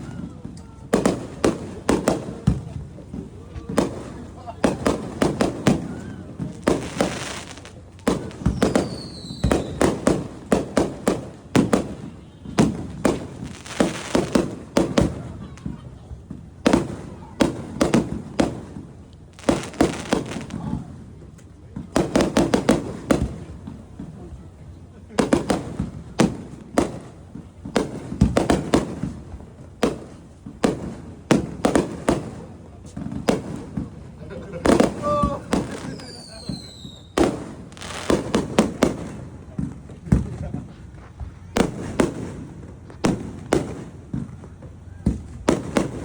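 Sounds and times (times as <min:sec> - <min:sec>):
fireworks banging: 0:00.0 - 0:46.0
fireworks crackling: 0:00.0 - 0:46.0
falling whistle: 0:08.6 - 0:09.8, 0:35.9 - 0:37.2.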